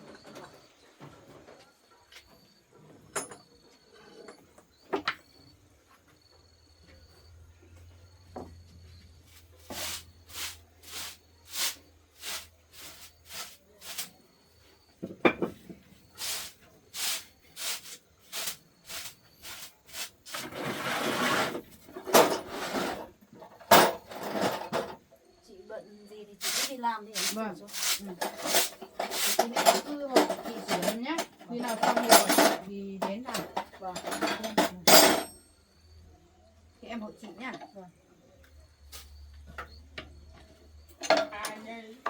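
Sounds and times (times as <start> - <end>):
hand tool scraping strokes: 9.4 - 14.2, 16.2 - 23.1, 26.4 - 30.8.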